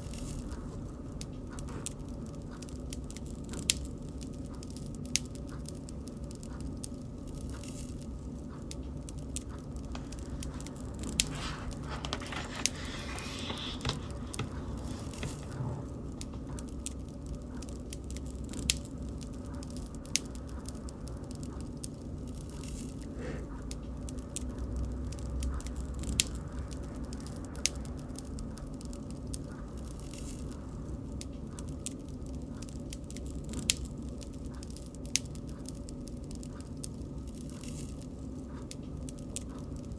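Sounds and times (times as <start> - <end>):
bonfire burning rumble: 0.0 - 39.9
fire popping: 7.6 - 23.4.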